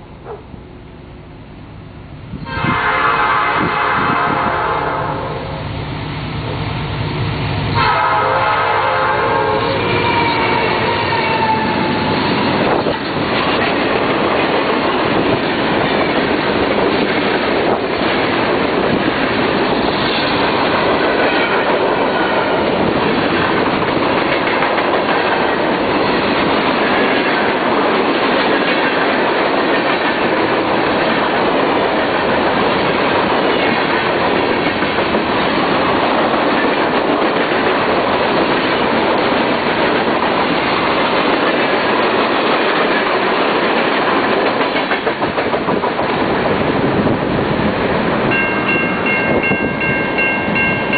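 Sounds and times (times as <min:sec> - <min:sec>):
freight train wheels on rail: 0:00.0 - 0:50.9
train horn: 0:02.4 - 0:05.6, 0:07.8 - 0:12.0
clickety-clack over rail joints: 0:12.0 - 0:50.9.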